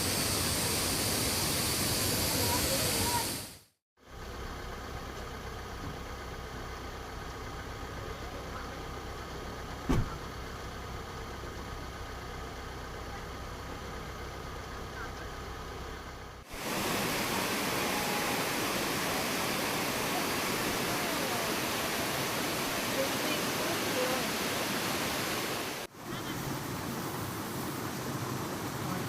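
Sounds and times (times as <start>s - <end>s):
brief knock: 9.9s - 10.2s
loud steady rushing noise: 16.5s - 25.9s.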